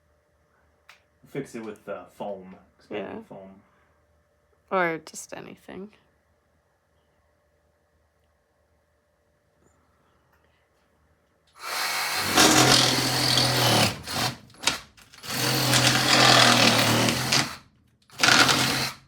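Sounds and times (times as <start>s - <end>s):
reciprocating saw cutting foam: 11.6s - 19.0s.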